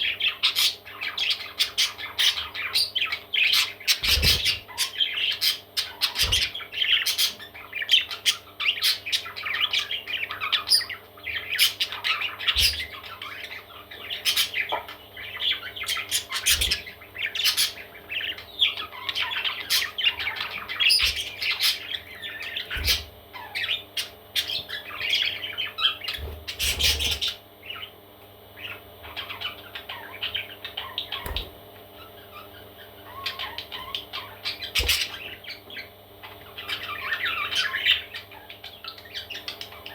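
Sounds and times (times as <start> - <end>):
parrot chicks squawking: 0.0 - 39.9.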